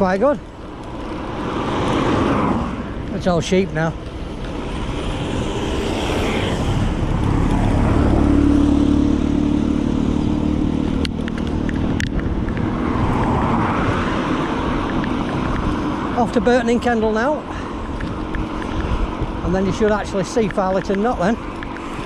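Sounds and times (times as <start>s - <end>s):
road noise rush: 0.0s - 22.0s
vehicle engine passing: 1.0s - 22.0s
sharp clicks: 20.4s - 22.0s.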